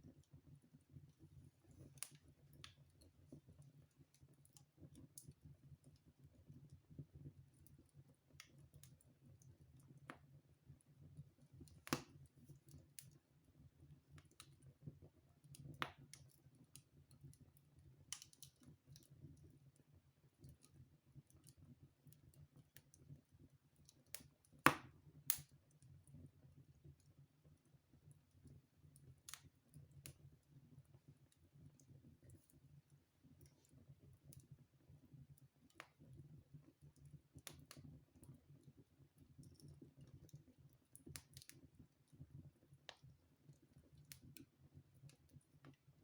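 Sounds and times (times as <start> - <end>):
wood fire crackling: 0.0 - 6.4, 11.4 - 23.1, 23.7 - 25.7, 26.7 - 45.8.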